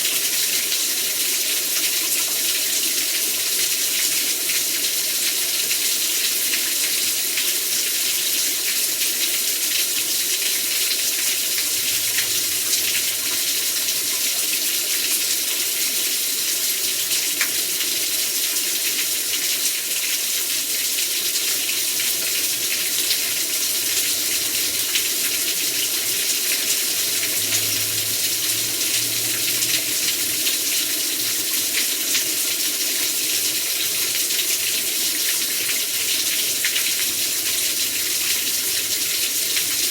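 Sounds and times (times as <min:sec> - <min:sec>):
heavy rain pouring: 0:11.1 - 0:15.3, 0:22.2 - 0:39.9.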